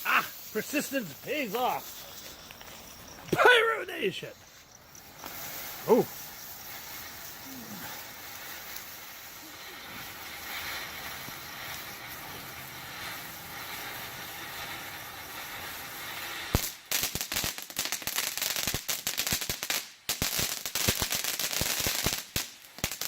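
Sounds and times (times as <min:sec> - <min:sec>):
firework crackling pops: 0:00.0 - 0:23.0
firework fountain hissing: 0:00.0 - 0:23.0
sharp crack: 0:05.2 - 0:09.0.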